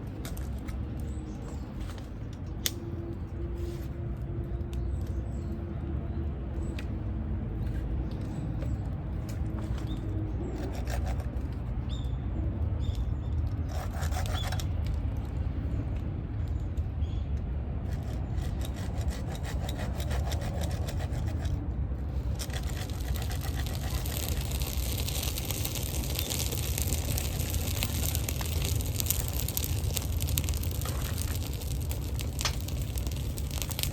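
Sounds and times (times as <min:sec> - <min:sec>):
wood scraping strokes: 0:17.9 - 0:33.9
steady low rumble: 0:20.9 - 0:33.9.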